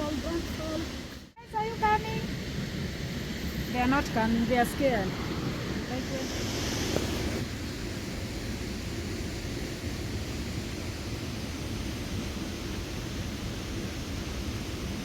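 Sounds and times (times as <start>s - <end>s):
low rushing noise: 0.0s - 10.5s
bright hiss: 0.0s - 15.0s.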